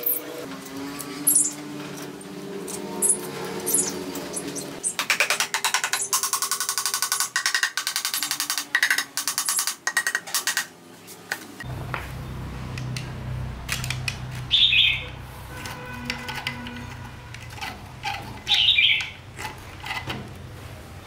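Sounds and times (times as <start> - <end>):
low motor hum: 11.6 - 21.0
bird chirp: 14.5 - 15.2, 18.4 - 19.2
hand tool scraping metal: 15.4 - 20.3.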